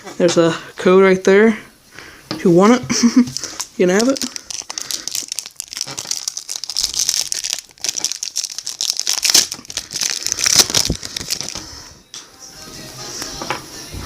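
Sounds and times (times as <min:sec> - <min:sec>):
foil wrapper crinkling: 0:03.3 - 0:11.8.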